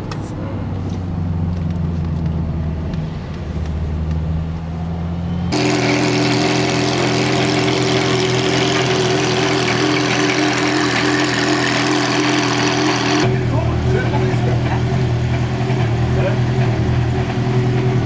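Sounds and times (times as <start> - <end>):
car engine droning: 0.0 - 18.0
engine idling: 5.5 - 18.0.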